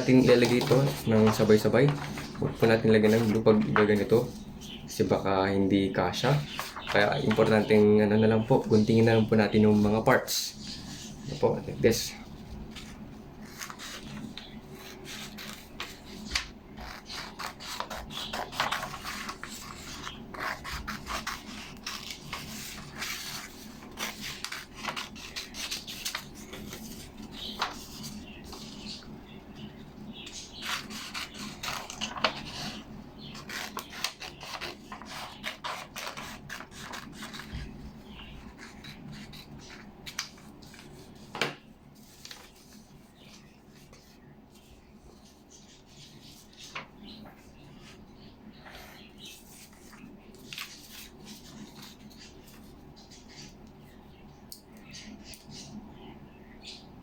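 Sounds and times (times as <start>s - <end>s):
paper rustling: 0.0s - 4.8s, 6.1s - 29.1s, 29.7s - 48.0s, 48.7s - 53.6s
scissors snipping paper: 0.1s - 4.2s, 12.7s - 28.8s, 30.2s - 41.1s.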